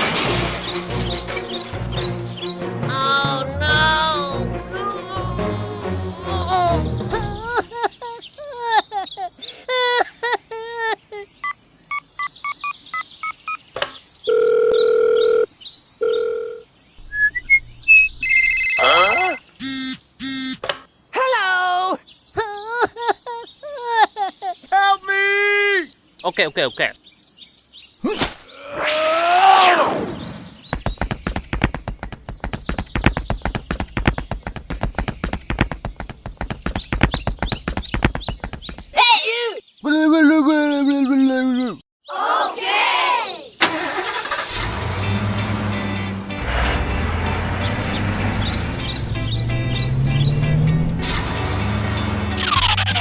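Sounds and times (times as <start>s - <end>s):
telephone ring tones: 14.3s - 16.6s, 18.2s - 19.4s
rising beeps: 17.0s - 20.6s
hooves clip-clopping: 30.7s - 38.9s.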